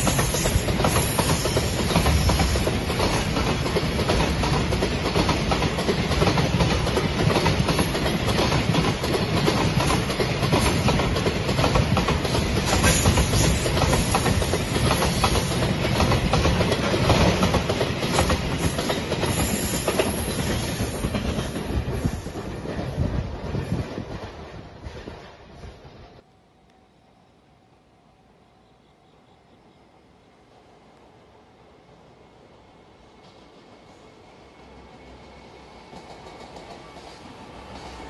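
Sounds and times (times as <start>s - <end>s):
train wheels clattering over rail joints: 0.0s - 25.2s.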